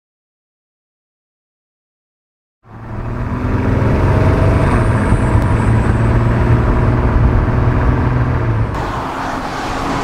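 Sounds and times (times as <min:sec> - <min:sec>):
car engine droning: 0:02.6 - 0:10.0.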